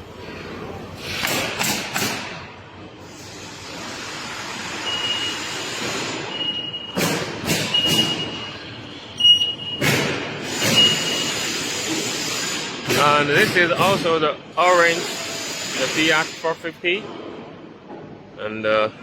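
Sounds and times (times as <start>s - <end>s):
machine and workshop noise: 0.0s - 18.4s
reversing alarm beeping: 4.7s - 7.0s, 7.6s - 9.9s, 10.6s - 11.6s.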